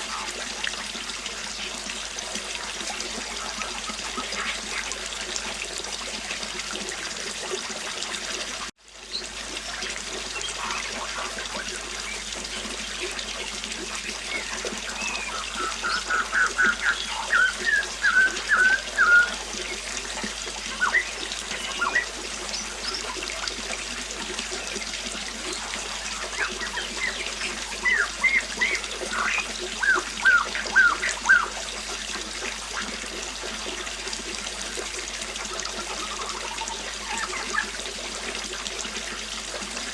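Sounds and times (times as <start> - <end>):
river water flowing: 0.0 - 39.9
songbird chirping: 14.1 - 23.3, 26.1 - 31.6.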